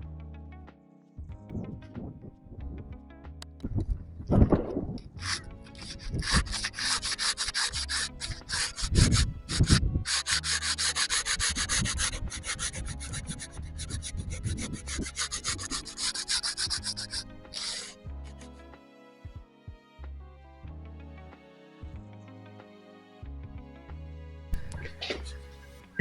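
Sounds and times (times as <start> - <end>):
hand sanding strokes: 5.2 - 18.0.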